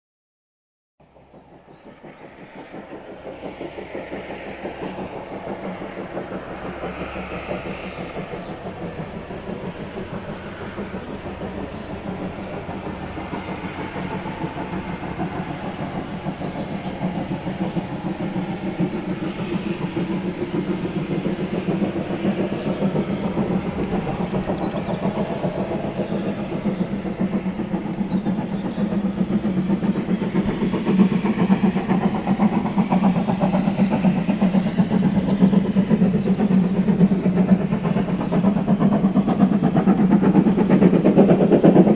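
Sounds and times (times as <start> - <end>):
steam train running: 1.0 - 41.9.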